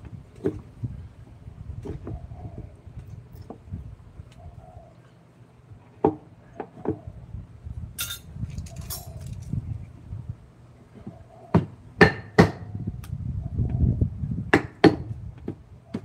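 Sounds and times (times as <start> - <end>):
steady low hum: 0.0 - 16.0
clinking scrapes: 8.0 - 9.4.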